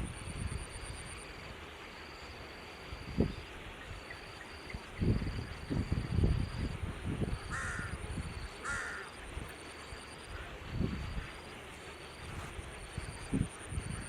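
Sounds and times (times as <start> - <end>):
bird calling: 7.5 - 9.2.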